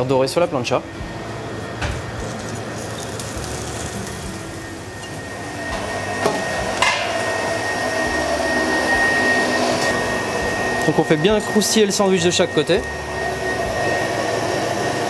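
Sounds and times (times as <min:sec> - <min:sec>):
sandwiches sizzling on a hot plate: 0:02.2 - 0:04.6.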